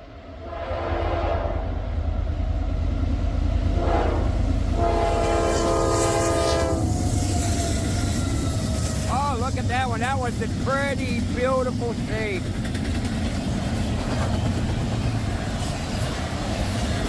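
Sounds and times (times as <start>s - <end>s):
low rumble of train: 0.0s - 17.0s
locomotive horn blasts: 0.4s - 1.6s, 3.8s - 7.0s.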